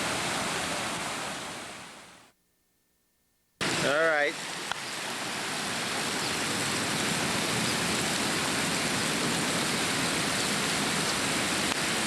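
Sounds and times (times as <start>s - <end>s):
running water rushing: 0.0s - 2.3s, 3.6s - 12.0s.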